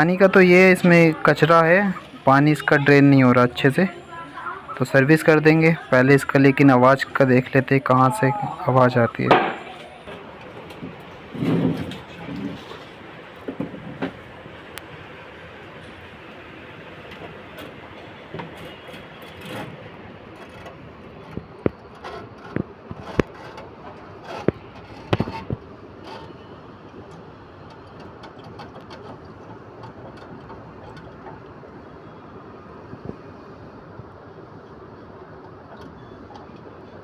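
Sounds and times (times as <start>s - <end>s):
air conditioner running: 0.0s - 37.0s
sharp clicks and knocks: 17.0s - 31.9s.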